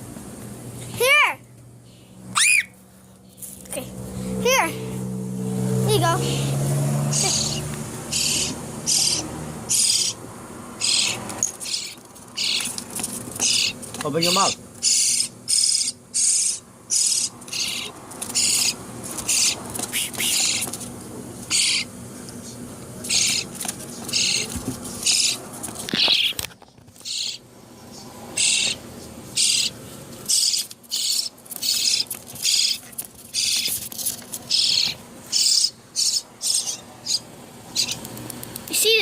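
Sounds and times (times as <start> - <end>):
baby bird begging calls: 2.3 - 2.8, 6.0 - 10.2, 10.8 - 12.7, 13.4 - 20.7, 21.5 - 21.9, 23.1 - 23.5, 24.1 - 25.4, 27.0 - 27.4, 28.4 - 33.8, 34.5 - 38.0.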